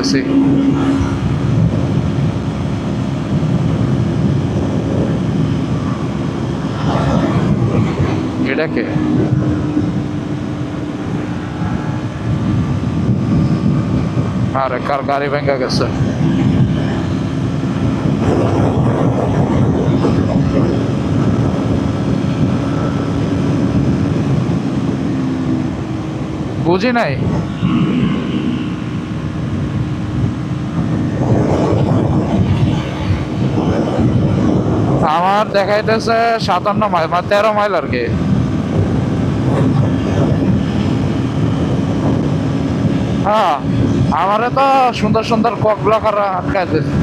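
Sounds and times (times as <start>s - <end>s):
motorcycle engine running: 0.0s - 47.0s
wind rush on microphone: 0.0s - 47.0s.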